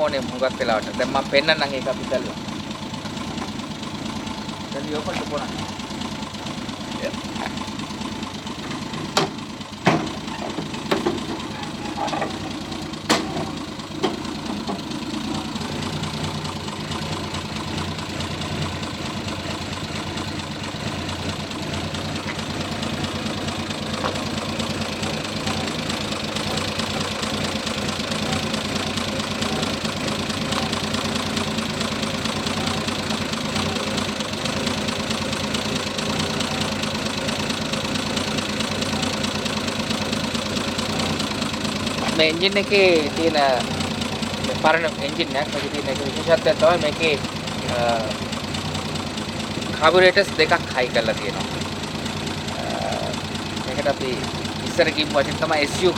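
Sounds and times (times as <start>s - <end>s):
car engine idling: 0.0s - 55.9s
car bonnet clacks and knocks: 8.6s - 14.9s.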